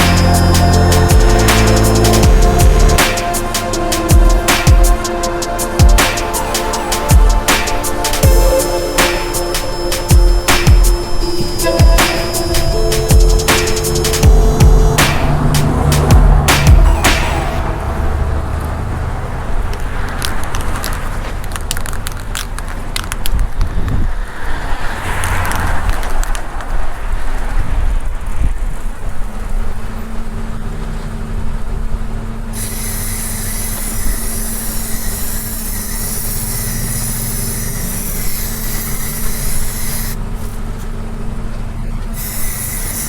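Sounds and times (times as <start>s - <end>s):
high hiss of sander: 32.6s - 40.2s, 42.2s - 43.0s
power sander motor hum: 32.6s - 40.2s, 42.2s - 43.0s.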